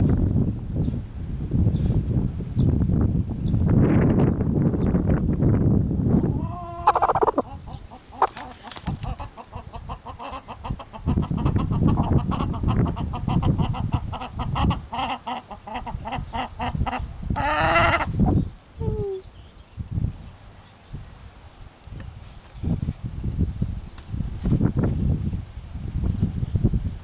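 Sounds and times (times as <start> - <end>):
rooster clucking and squawking: 6.2 - 19.2
rooster call: 6.3 - 7.6.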